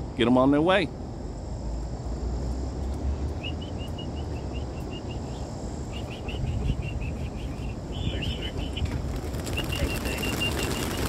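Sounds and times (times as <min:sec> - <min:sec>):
low outdoor rumble: 0:00.0 - 0:11.0
small bird chirping: 0:03.3 - 0:11.0.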